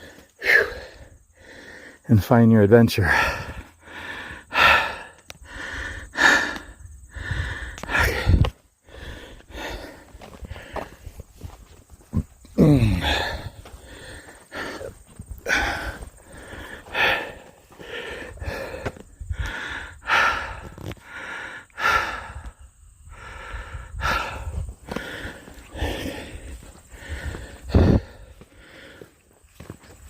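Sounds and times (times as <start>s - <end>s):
man breathing hard: 0.0s - 2.1s, 3.0s - 30.0s
man groaning sigh: 12.5s - 16.0s.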